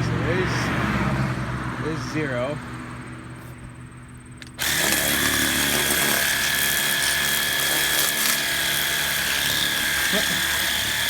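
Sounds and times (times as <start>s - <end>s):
pressure washer motor whine: 4.4s - 11.0s
water spray hissing: 4.6s - 11.0s.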